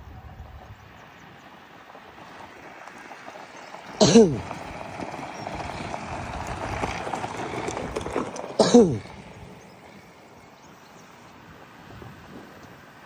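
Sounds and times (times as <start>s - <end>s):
outdoor background noise: 0.0s - 13.0s
person calling out: 4.0s - 4.4s, 8.6s - 9.0s.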